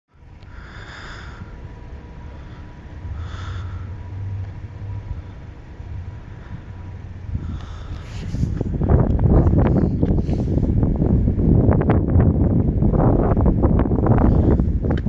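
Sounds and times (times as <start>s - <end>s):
distant freight train rumble: 0.1s - 15.0s
wind on microphone: 2.4s - 15.0s.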